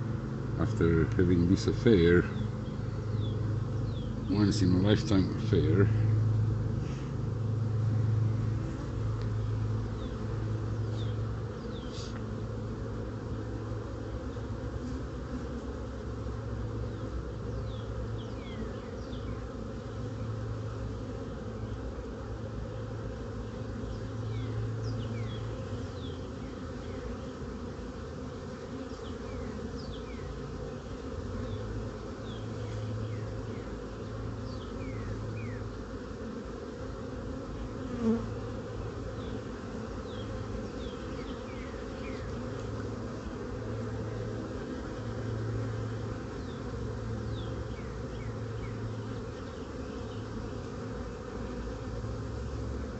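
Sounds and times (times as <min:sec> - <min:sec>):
honeybees humming: 0:00.0 - 0:52.9.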